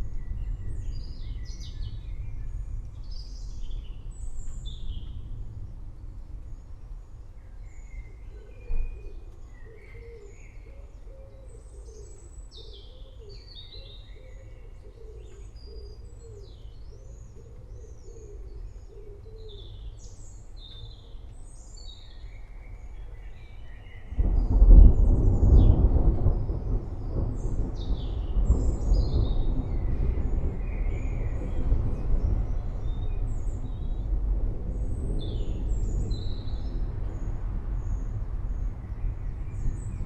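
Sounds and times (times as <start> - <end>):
birds chirping and twittering: 0.0 - 40.0
thunder rumbling: 24.1 - 40.0.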